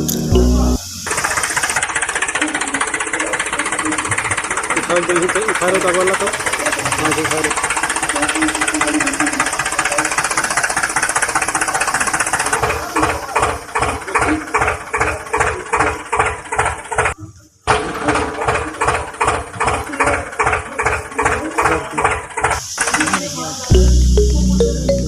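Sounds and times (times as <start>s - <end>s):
small motor buzzing and chugging: 1.0s - 17.2s.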